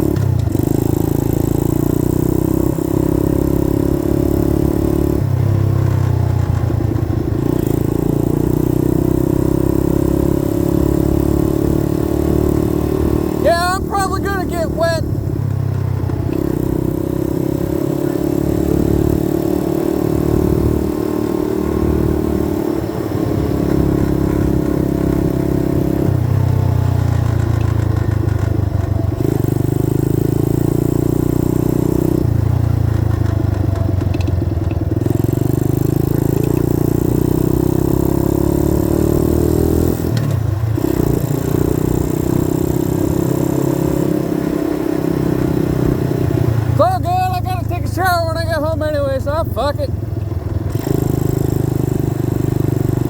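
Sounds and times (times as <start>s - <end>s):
dirt bike engine revving: 7.4s - 15.2s, 40.8s - 53.0s.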